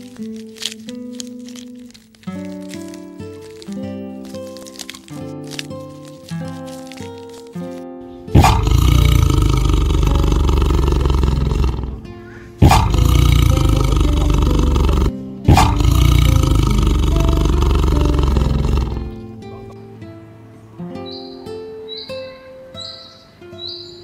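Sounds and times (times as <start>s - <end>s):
big cat roaring: 8.3s - 19.4s.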